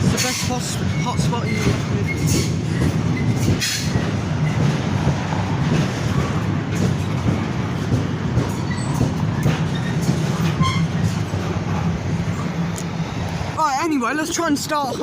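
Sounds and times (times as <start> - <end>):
freight train wagons rumbling: 0.0 - 15.0
rail clicks: 0.0 - 15.0
wheel squeal: 8.6 - 11.2.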